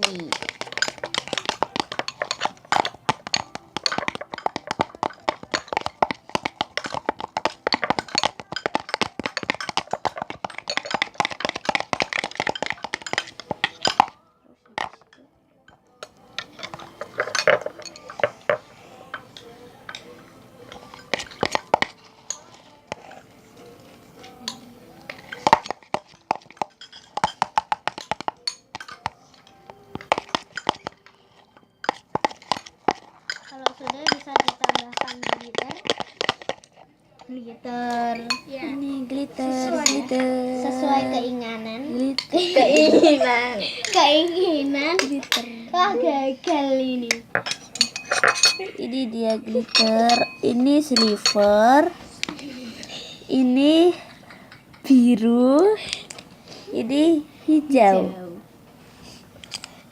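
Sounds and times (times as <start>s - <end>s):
slime crackling and popping: 31.9s - 36.8s.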